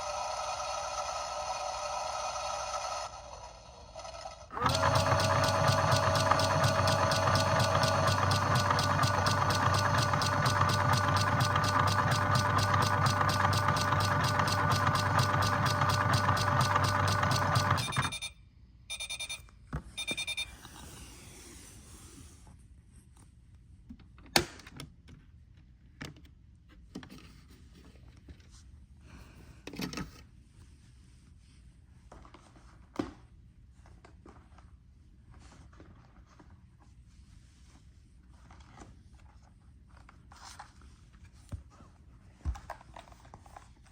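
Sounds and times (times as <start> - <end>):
washing machine running: 4.0 - 18.2
short electronic beeps: 17.8 - 20.6.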